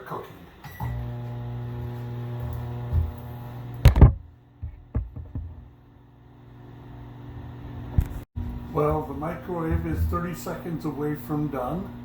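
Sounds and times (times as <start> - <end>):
microwave oven humming: 0.6 - 12.0
loud knock: 3.9 - 5.6.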